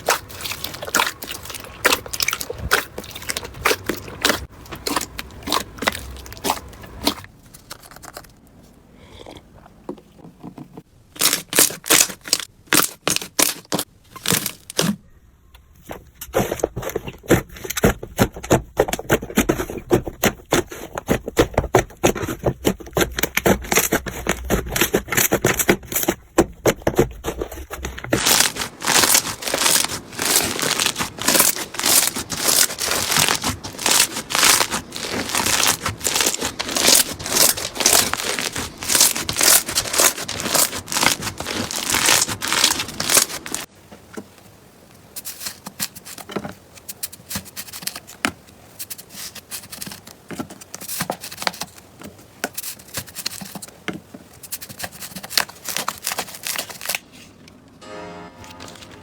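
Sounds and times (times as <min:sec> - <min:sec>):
slime crackling and popping: 0:11.2 - 0:15.0, 0:27.7 - 0:43.7.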